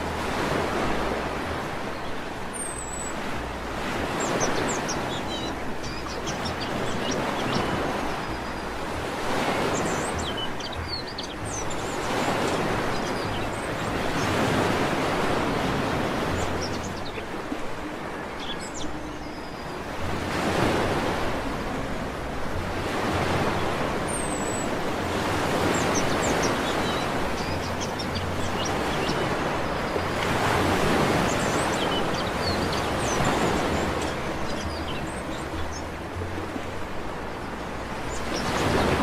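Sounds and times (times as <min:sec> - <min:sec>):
sea waves breaking on beach: 0:00.0 - 0:39.0
small birds chirping: 0:04.1 - 0:20.0, 0:23.6 - 0:36.0.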